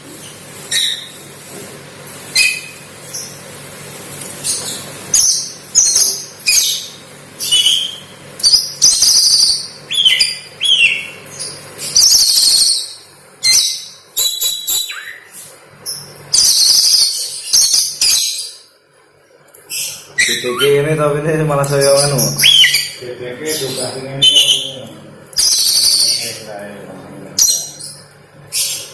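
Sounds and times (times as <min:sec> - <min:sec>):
bird singing scratchy chatter: 0:04.4 - 0:18.7, 0:19.4 - 0:28.9
bird whistles gliding downward: 0:13.5 - 0:15.3, 0:16.3 - 0:18.6, 0:22.2 - 0:23.0, 0:24.2 - 0:24.8.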